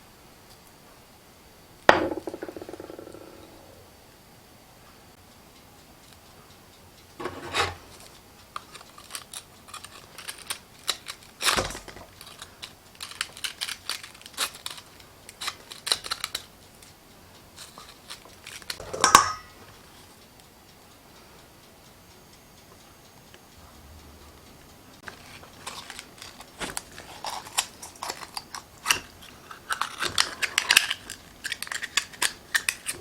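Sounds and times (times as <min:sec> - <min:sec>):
loud scraping rustle: 0:07.2 - 0:07.9
kitchen clicks knocks and scrapes: 0:07.2 - 0:08.0, 0:17.6 - 0:19.5.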